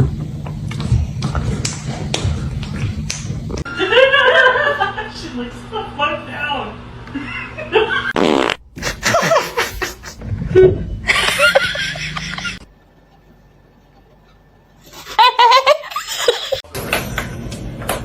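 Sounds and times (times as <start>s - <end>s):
people laughing: 3.7s - 5.2s, 8.8s - 12.6s, 14.9s - 16.6s.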